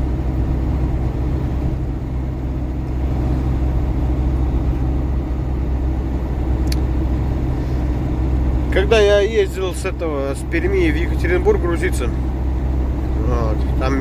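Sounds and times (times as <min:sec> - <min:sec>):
diesel engine drone: 0:00.0 - 0:14.0
road noise: 0:00.0 - 0:14.0.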